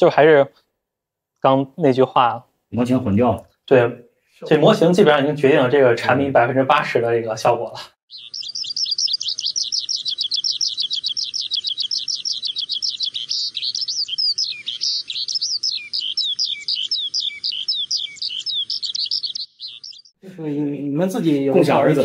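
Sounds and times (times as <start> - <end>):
bird chirping: 8.1 - 22.0.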